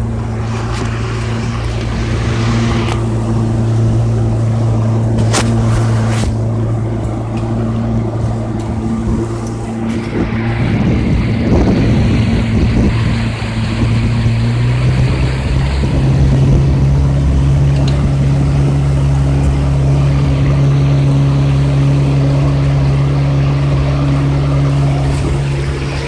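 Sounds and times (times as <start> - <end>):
outboard motor running: 0.0 - 26.0.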